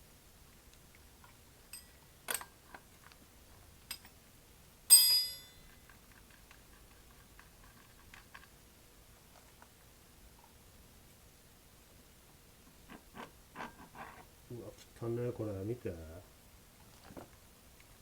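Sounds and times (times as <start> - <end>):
tools clicking and knocking: 3.9 - 4.2
sharp metallic clink: 4.9 - 5.7.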